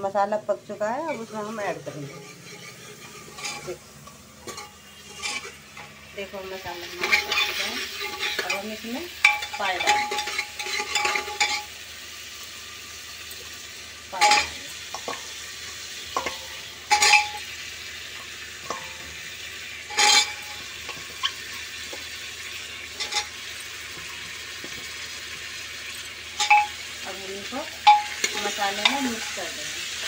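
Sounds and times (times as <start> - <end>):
food sizzling in pot: 0.0 - 30.0
metal ladle clanking on pot: 1.1 - 5.9, 7.0 - 11.7, 14.2 - 15.4, 16.1 - 17.5, 18.2 - 19.2, 19.9 - 22.1, 22.9 - 24.9, 26.3 - 26.8, 27.8 - 29.4.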